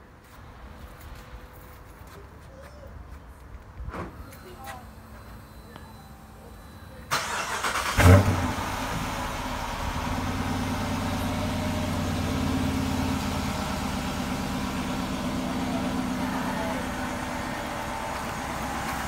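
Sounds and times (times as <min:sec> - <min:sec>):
car engine starting and idling: 0:07.1 - 0:19.0.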